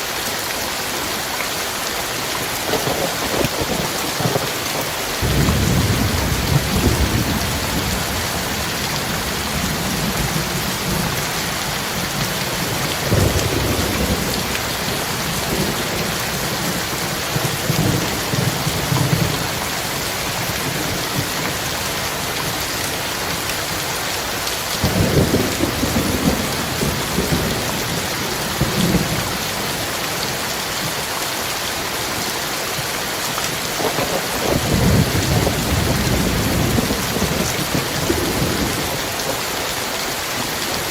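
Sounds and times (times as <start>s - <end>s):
heavy rain pouring: 0.0s - 40.9s
thunder rumbling: 2.7s - 22.6s, 24.8s - 29.9s, 33.8s - 39.6s.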